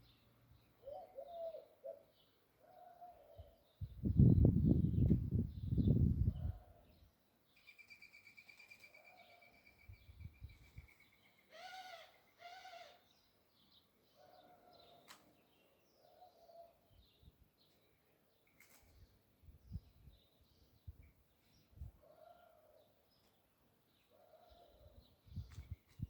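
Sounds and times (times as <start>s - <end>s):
small birds chirping: 0.0s - 26.0s
doves cooing: 0.8s - 3.6s
low rumble on microphone: 3.8s - 6.7s.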